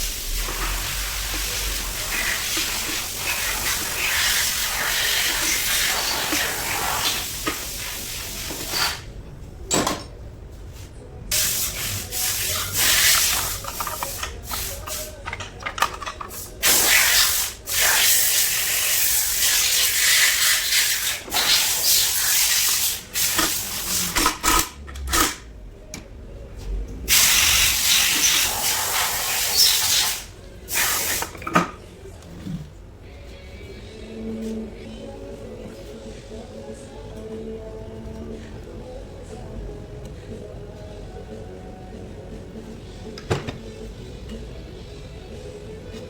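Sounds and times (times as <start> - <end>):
pressurised spray hissing: 0.0 - 9.1, 11.3 - 15.2, 16.3 - 24.2, 27.1 - 31.3.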